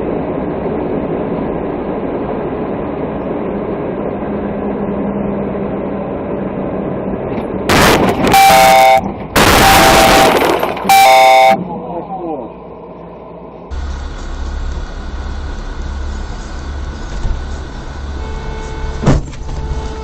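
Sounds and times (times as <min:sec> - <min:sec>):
vehicle running with road noise: 0:00.0 - 0:20.0
loud horn blast: 0:07.7 - 0:11.7, 0:18.0 - 0:20.0
loud noise: 0:07.7 - 0:11.9.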